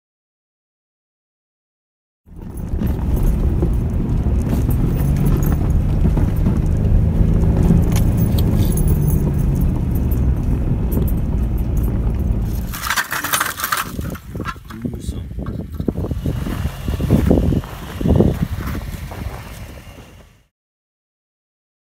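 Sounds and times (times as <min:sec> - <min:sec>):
car engine rumbling: 0:02.3 - 0:20.5.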